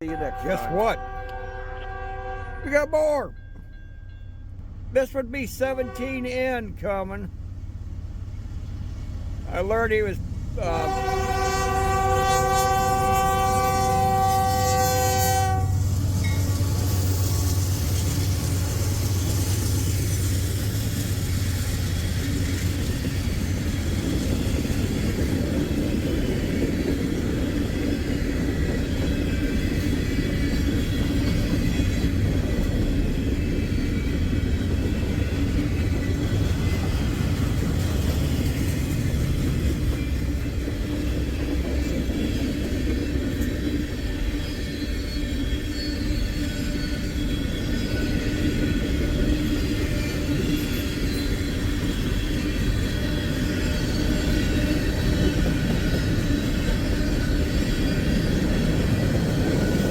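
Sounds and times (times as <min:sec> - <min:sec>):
locomotive air horn: 0:00.0 - 0:03.3, 0:05.0 - 0:06.6, 0:10.6 - 0:15.8
train rolling past: 0:00.0 - 0:59.9.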